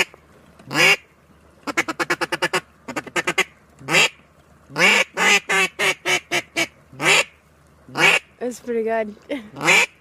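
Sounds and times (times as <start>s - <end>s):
duck call quacking: 0.7s - 1.0s, 1.6s - 7.3s, 7.9s - 8.3s, 9.6s - 10.0s.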